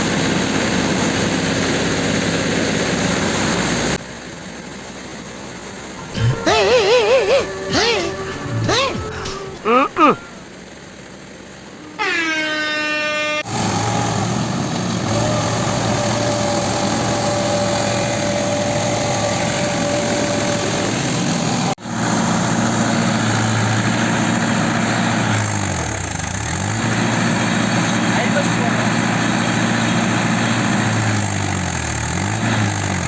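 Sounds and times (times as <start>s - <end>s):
tractor diesel engine running: 0.1s - 10.5s, 13.5s - 32.9s
horn-like tone: 6.0s - 10.4s, 11.9s - 13.5s.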